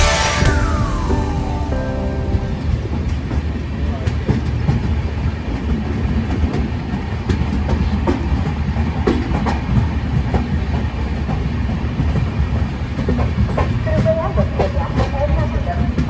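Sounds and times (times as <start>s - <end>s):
train coach rumble: 0.0s - 16.0s
wheels clicking over rails: 0.0s - 16.0s.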